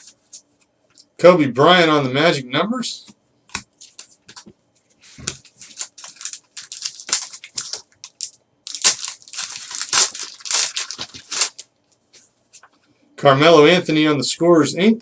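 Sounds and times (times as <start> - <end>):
card pack wrappers crinkling: 5.2 - 11.7.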